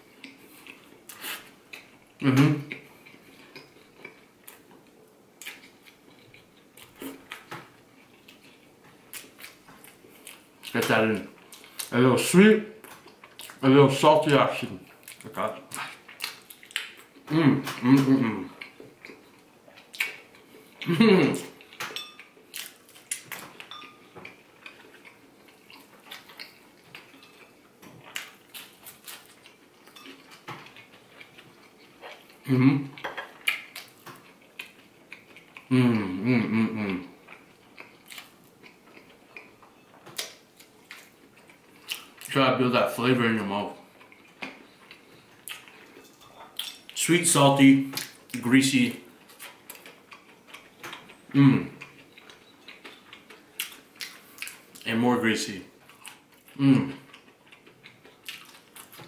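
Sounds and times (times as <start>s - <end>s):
chewing and lip smacking: 2.6s - 12.0s, 14.8s - 20.9s, 21.5s - 35.7s, 37.2s - 42.4s, 43.8s - 47.0s, 49.0s - 54.9s, 55.8s - 59.0s
fork clinking on plate: 46.0s - 46.8s.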